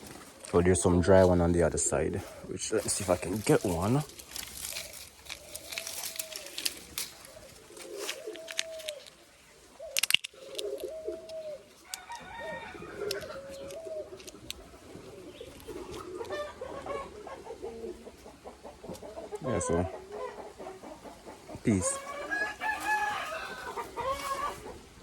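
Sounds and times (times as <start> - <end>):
dry plants clicking and rustling: 0.0 - 17.1, 21.6 - 24.7
dove cooing: 0.0 - 25.0
bean pod snapping: 4.2 - 9.2, 9.9 - 12.4.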